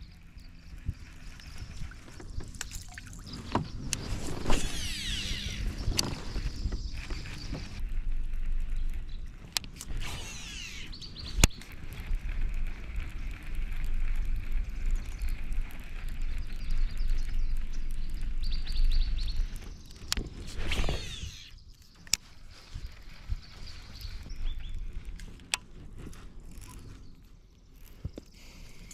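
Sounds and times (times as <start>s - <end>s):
wind rumble on microphone: 0.0s - 28.9s
fishing reel whirring cast: 3.8s - 7.9s, 9.5s - 18.4s, 19.8s - 22.3s
fishing reel reeling: 3.8s - 8.5s, 9.8s - 18.5s, 19.4s - 22.2s
sharp clicks: 9.0s - 12.2s.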